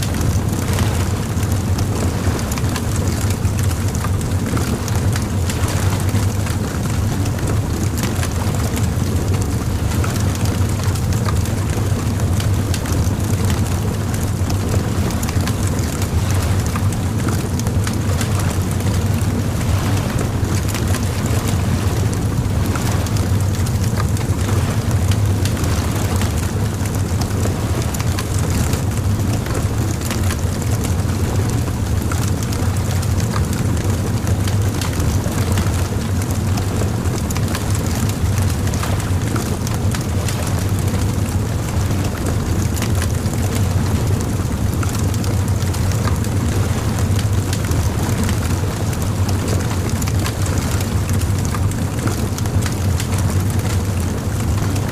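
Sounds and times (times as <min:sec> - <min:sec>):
low rumble: 0:00.0 - 0:34.8
bonfire crackling and popping: 0:44.4 - 0:54.9.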